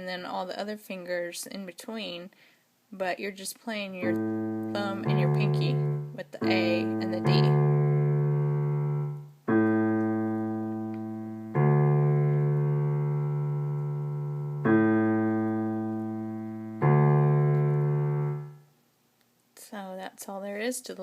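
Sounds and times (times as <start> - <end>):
keyboard octave notes: 4.0 - 18.7.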